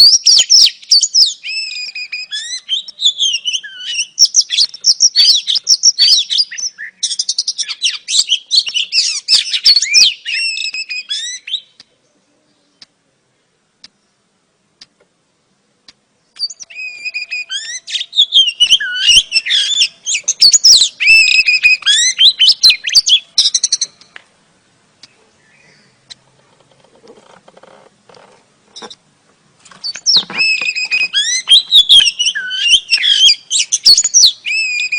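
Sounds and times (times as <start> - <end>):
bird singing chirps and whistles: 0.0 - 11.8, 16.3 - 24.1, 29.8 - 34.9.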